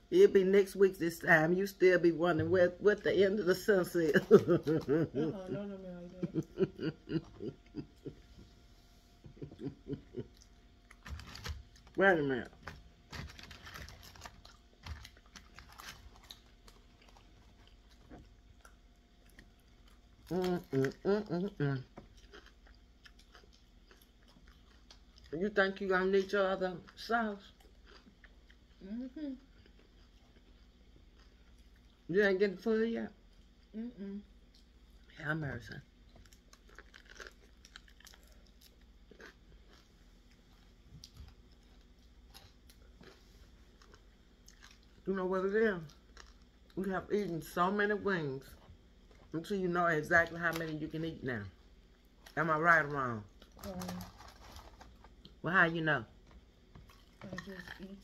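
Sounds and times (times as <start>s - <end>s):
chewing chicken wings: 13.4s - 25.4s, 26.8s - 32.1s, 36.0s - 45.0s.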